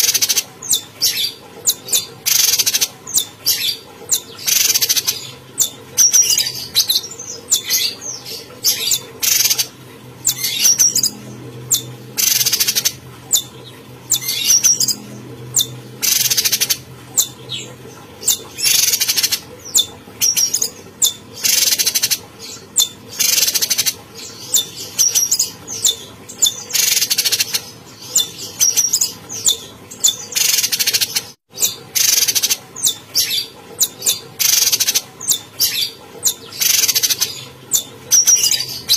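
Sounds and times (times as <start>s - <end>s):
songbird calling rapidly: 0.0s - 17.7s, 18.3s - 22.2s, 22.8s - 38.9s.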